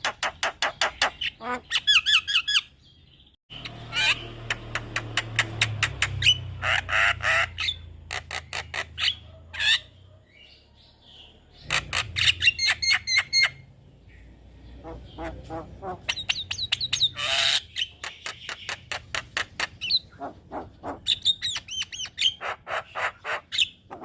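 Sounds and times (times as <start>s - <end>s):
myna calling: 14.6s - 24.0s.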